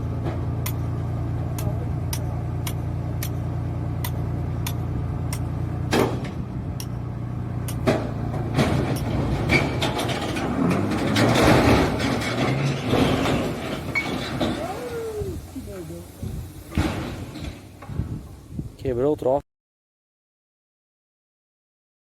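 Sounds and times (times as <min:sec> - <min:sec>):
noisy engine clatter: 0:00.0 - 0:18.4
engine humming: 0:00.0 - 0:18.8
sharp ticks: 0:04.0 - 0:05.5, 0:06.8 - 0:07.0.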